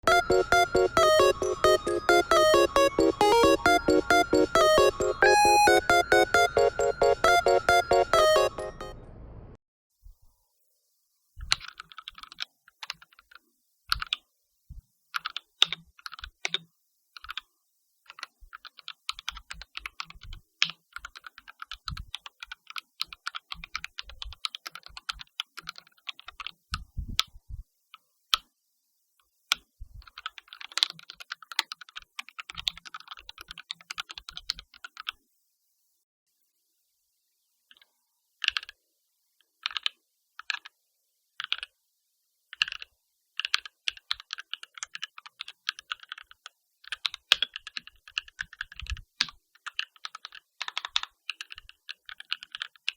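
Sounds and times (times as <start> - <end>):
mechanical keyboard typing: 0.0 - 8.8, 11.5 - 14.2, 15.2 - 16.6, 17.2 - 17.4, 18.1 - 26.6, 29.5 - 35.2, 38.4 - 38.8, 39.6 - 40.7, 41.4 - 41.7, 42.5 - 52.9.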